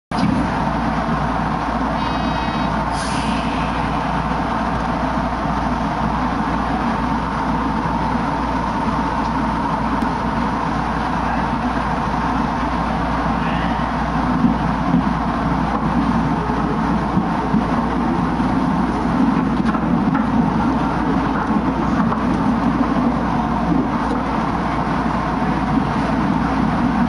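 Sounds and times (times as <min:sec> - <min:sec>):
train wheels and motors rumbling: 0:00.1 - 0:27.0
short hiss: 0:02.9 - 0:03.8.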